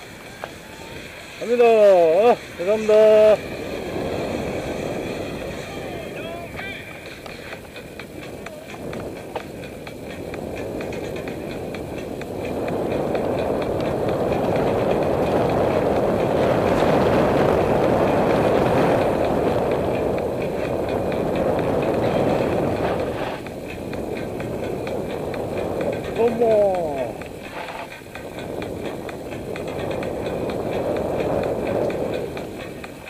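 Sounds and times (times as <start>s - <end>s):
bike tyres rumbling on dirt: 3.1s - 33.0s.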